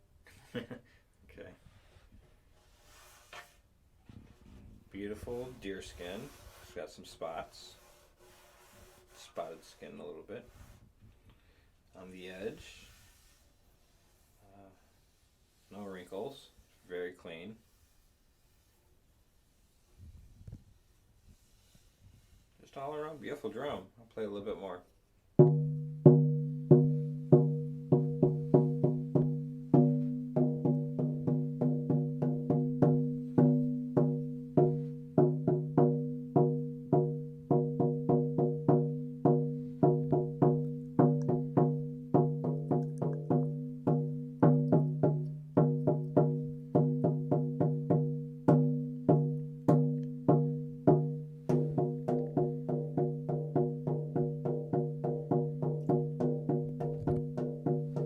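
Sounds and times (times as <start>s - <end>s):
frame drum struck with beater: 25.4s - 58.0s.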